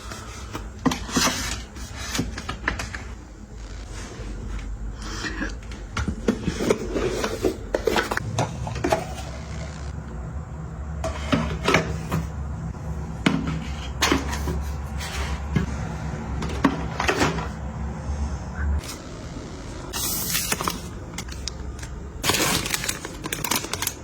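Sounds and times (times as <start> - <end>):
items rubbing and sliding: 0.0 - 10.0, 11.0 - 18.2
containers clicking and knocking: 20.5 - 24.0.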